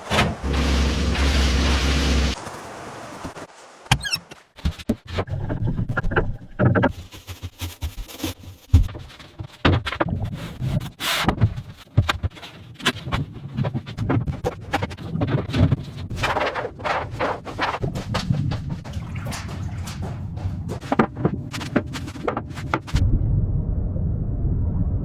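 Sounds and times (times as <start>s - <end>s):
knocks thuds and clatter: 0.0s - 2.4s.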